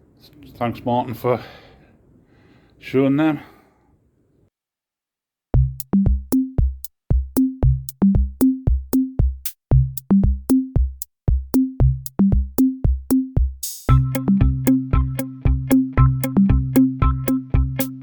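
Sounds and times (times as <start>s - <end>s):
short bass notes: 5.6s - 6.7s, 7.6s - 8.4s, 9.7s - 10.4s, 11.8s - 12.4s, 13.9s - 18.0s
electronic drum-machine beat: 5.6s - 18.0s.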